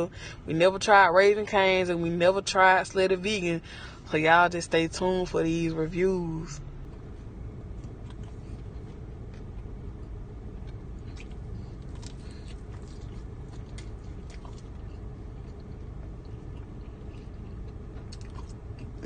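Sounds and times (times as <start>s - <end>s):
steady low rumble: 0.0s - 19.0s
person chewing food: 7.7s - 19.0s.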